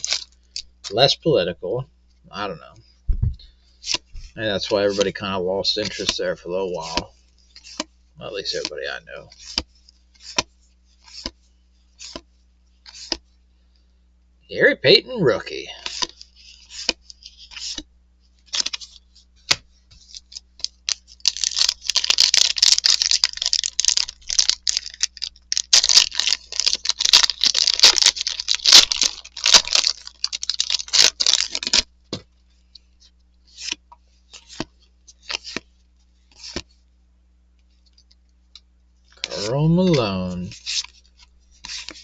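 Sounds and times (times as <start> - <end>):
plastic wrapper crinkling and tearing: 0.0 - 0.7, 20.0 - 31.9
cards clicking: 6.8 - 7.9, 10.2 - 11.4, 12.0 - 12.2.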